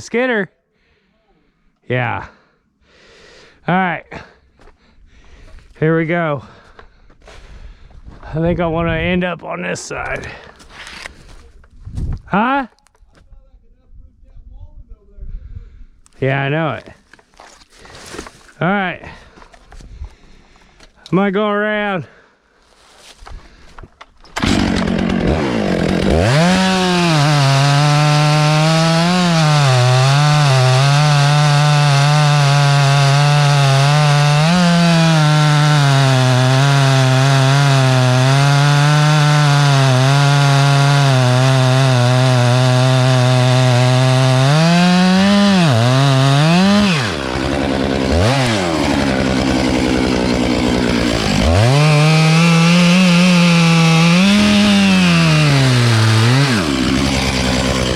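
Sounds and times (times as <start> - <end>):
chainsaw cutting wood: 24.2 - 57.9.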